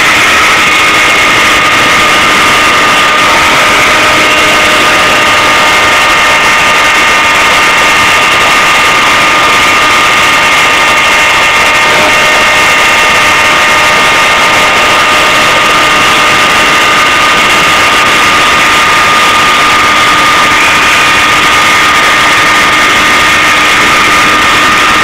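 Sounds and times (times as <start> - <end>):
machine running with whine: 0.0 - 25.0.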